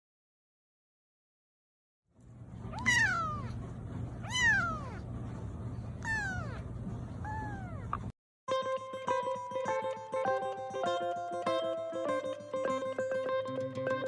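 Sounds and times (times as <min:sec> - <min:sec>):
steady low hum: 0:02.2 - 0:08.1
kitten meowing: 0:02.7 - 0:03.6, 0:04.2 - 0:05.0, 0:06.0 - 0:06.6, 0:07.2 - 0:08.1.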